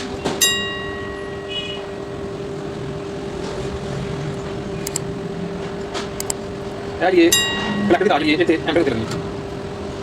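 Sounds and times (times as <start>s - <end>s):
steady mechanical hum: 0.0s - 10.0s
metal object clinking and ringing: 7.3s - 8.2s.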